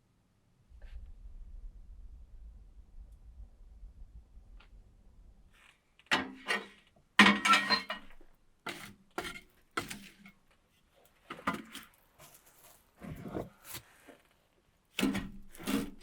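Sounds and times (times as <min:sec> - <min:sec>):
cookware clinking and knocking: 0:06.1 - 0:08.2
ringing clatter of cookware: 0:07.2 - 0:08.2.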